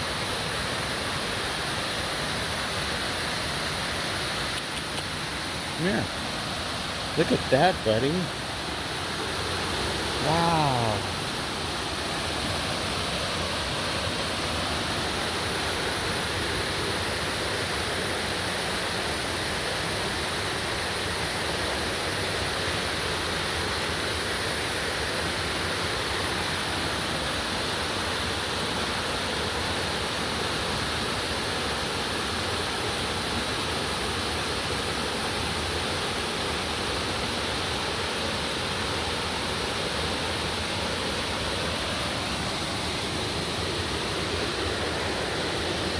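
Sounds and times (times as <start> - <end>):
waterfall rushing: 0.0 - 26.8, 41.0 - 45.9.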